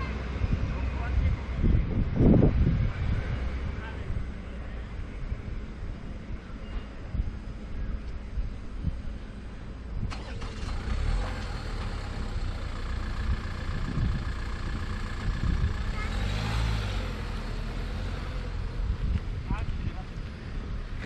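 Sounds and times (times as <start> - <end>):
vehicle engine driving past: 10.1 - 19.1.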